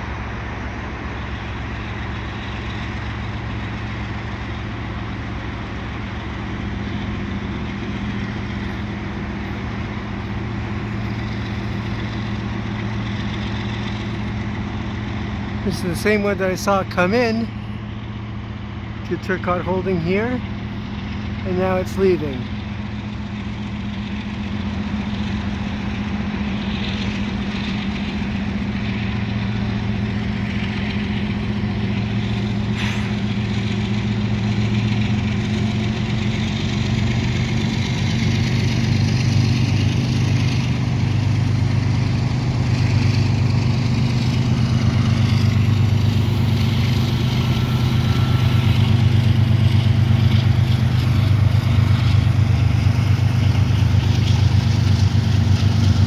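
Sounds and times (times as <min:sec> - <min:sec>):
diesel locomotive engine drone: 0:00.0 - 0:56.0.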